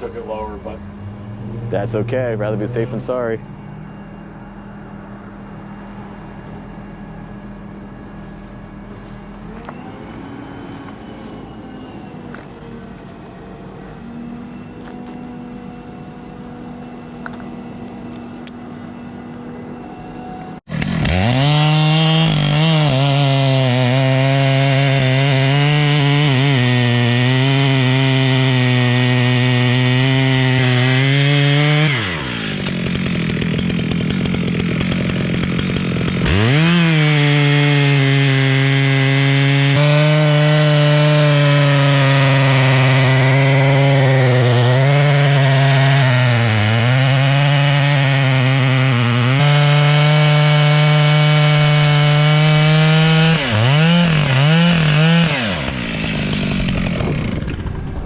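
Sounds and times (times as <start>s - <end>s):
steady engine hum: 0.0s - 25.7s, 51.6s - 58.0s
chainsaw cutting: 0.0s - 58.0s.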